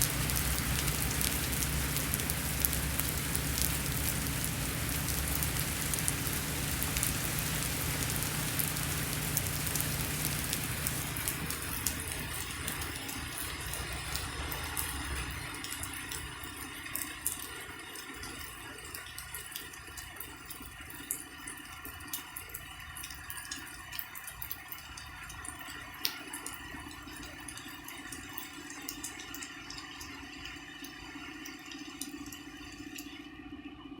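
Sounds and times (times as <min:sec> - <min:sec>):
low steady rumble: 0:00.0 - 0:12.9
rain falling: 0:00.0 - 0:20.3
water drips: 0:00.0 - 0:33.6.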